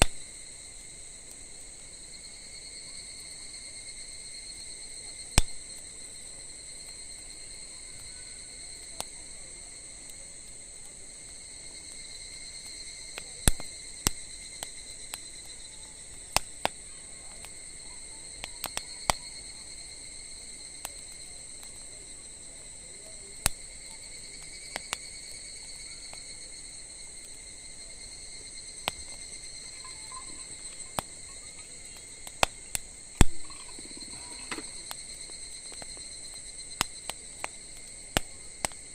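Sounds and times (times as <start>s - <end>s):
insects singing: 0.0s - 38.9s
wood fire crackling and popping: 0.0s - 38.9s.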